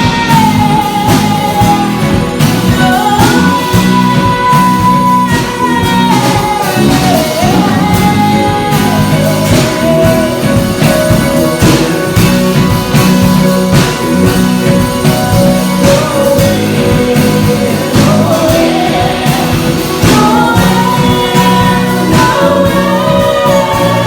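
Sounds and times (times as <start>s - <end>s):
church band playing a hymn: 0.0s - 24.0s
steady drum beat: 0.0s - 24.0s.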